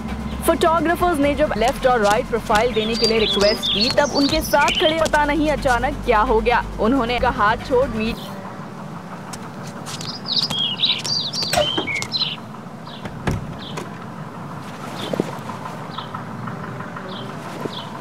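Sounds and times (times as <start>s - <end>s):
birds chirping: 0.0s - 18.0s
low background hum: 0.0s - 18.0s.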